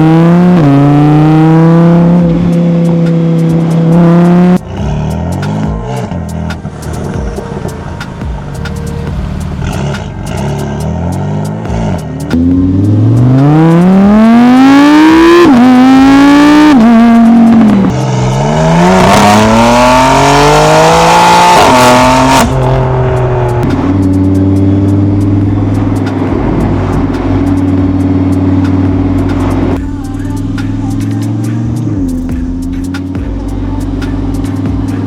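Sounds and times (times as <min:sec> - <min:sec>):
car engine accelerating hard: 0:00.0 - 0:35.0.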